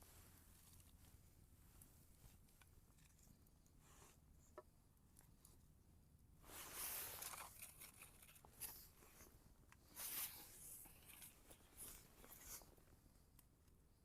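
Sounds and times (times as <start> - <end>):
rustling and tearing of tinder: 6.5 - 9.3.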